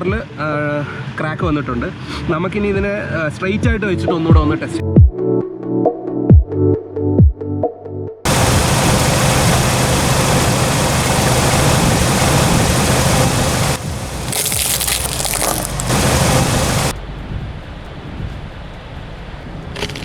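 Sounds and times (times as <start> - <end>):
car engine and tyres: 8.3 - 17.0
glass crunching under tyre: 10.4 - 16.9.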